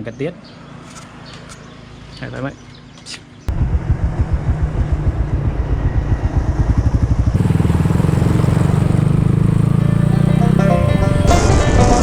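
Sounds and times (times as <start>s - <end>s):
motorcycle engine running: 3.5s - 12.0s.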